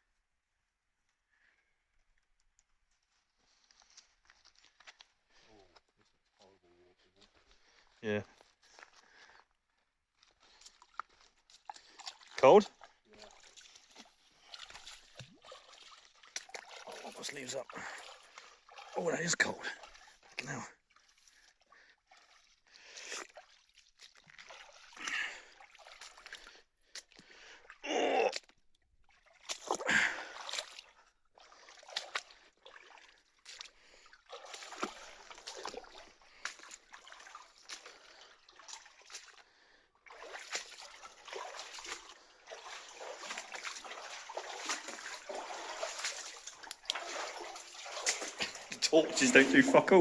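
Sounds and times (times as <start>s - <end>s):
feet wading and splashing in water: 10.0s - 50.0s.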